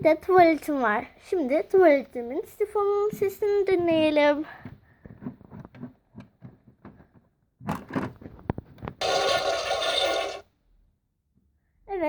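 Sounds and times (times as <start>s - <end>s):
toy toilet flush sound effect: 9.0s - 10.5s.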